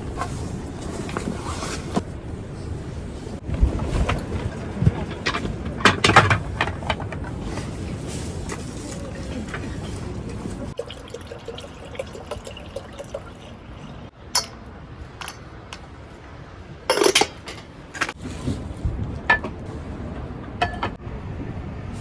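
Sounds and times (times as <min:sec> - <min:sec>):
dishes and utensils clinking: 0:14.4 - 0:14.6, 0:16.9 - 0:18.2.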